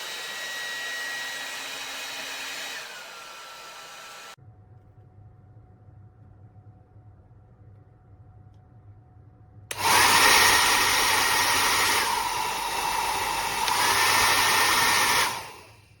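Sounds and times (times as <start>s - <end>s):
hair dryer blowing: 0.0s - 4.4s, 9.7s - 16.0s
hair dryer switch click: 9.7s - 15.6s.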